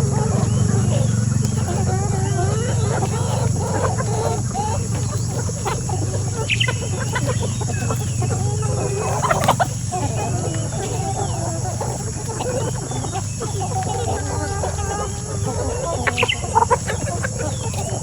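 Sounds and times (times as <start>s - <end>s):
hen squawks: 0.0s - 18.0s
hens clucking: 0.0s - 18.0s
steady low hum: 0.0s - 18.0s.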